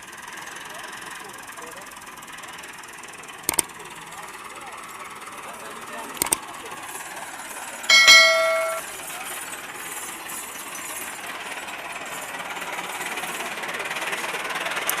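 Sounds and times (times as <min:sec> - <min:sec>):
tractor diesel engine clattering: 0:00.3 - 0:08.8, 0:09.5 - 0:15.0
bright ringing chime: 0:07.9 - 0:08.8.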